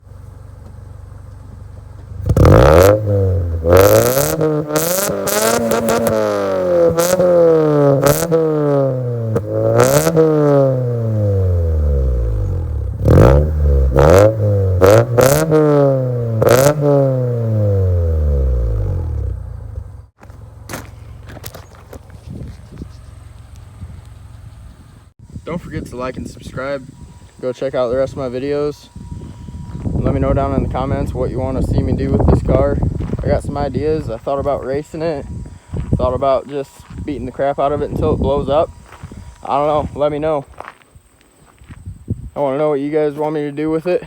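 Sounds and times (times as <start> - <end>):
car engine revving: 0.0 - 25.2
exhaust cracks: 0.0 - 44.0.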